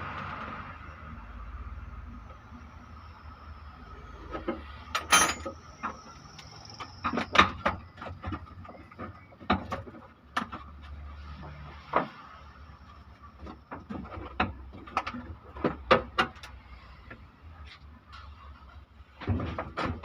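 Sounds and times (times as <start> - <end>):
metal tools clinking: 5.0 - 5.6
ringing metal clatter: 5.0 - 5.6.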